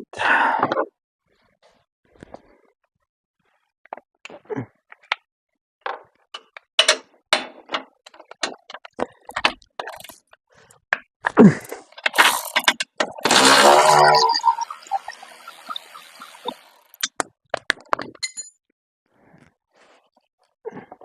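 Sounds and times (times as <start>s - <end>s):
metal tools clinking and knocking: 17.9s - 18.6s.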